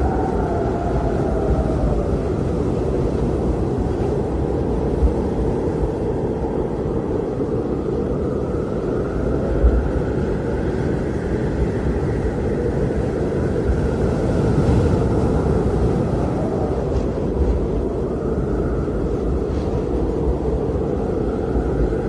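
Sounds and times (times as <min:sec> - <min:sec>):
blizzard wind rushing: 0:00.0 - 0:22.0
faint high wind whistle: 0:00.0 - 0:22.0.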